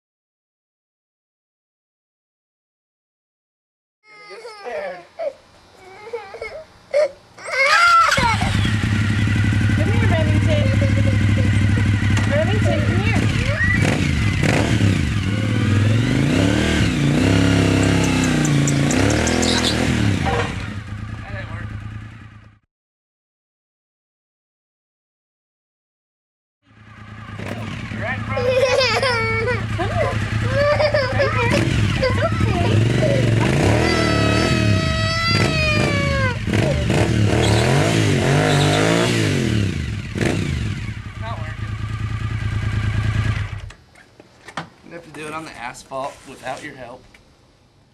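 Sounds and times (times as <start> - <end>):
motorcycle engine revving: 8.1 - 22.6, 26.7 - 43.8.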